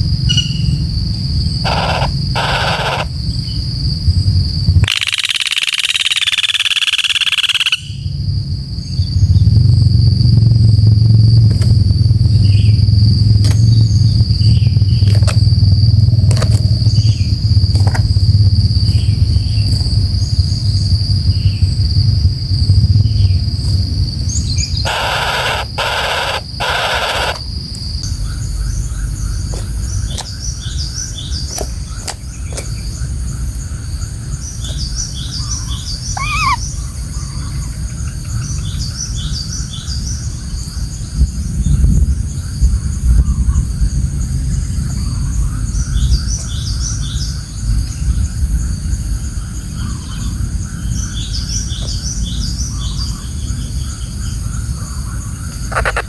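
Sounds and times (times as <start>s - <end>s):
birds chirping: 0.0s - 3.7s, 4.8s - 8.1s, 24.1s - 41.0s, 49.6s - 56.0s
insect buzzing: 0.0s - 3.9s, 4.8s - 8.0s, 24.1s - 28.0s, 36.0s - 36.7s, 55.6s - 56.0s
low rumble of wind: 0.0s - 5.0s, 7.8s - 56.0s
loud noisy pulsed burst: 24.8s - 27.4s.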